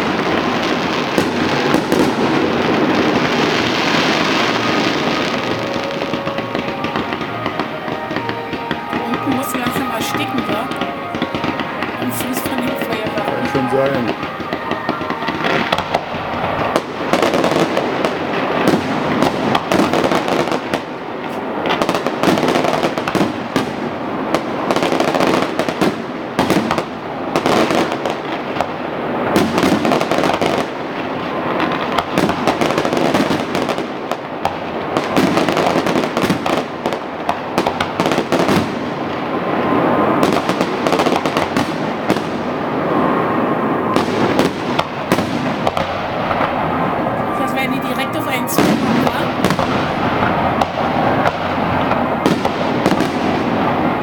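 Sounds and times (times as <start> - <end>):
fireworks bangs and crackling: 0.0 - 54.0.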